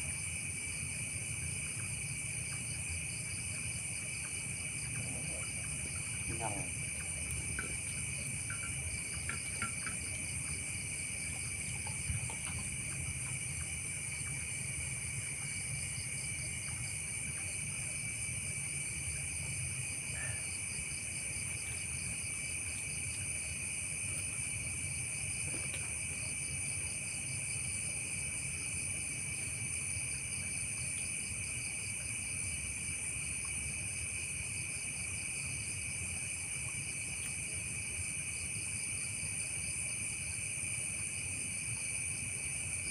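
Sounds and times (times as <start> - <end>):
crickets and insects chirring: 0.0 - 42.9.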